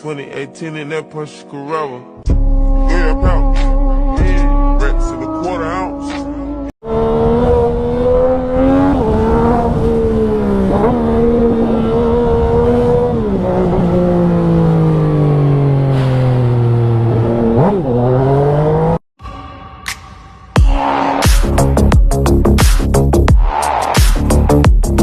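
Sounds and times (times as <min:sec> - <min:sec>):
motorcycle engine at high revs: 0:06.8 - 0:19.0.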